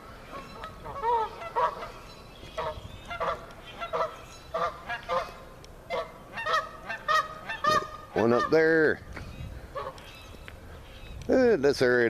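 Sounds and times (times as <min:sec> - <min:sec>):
waterfowl honking: 0:00.0 - 0:08.8, 0:09.7 - 0:10.1.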